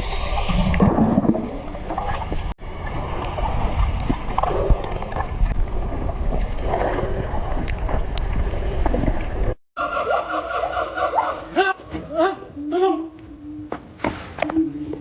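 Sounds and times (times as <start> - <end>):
water noise from boat: 0.0 - 9.6
wind rumbling on microphone: 0.0 - 9.6.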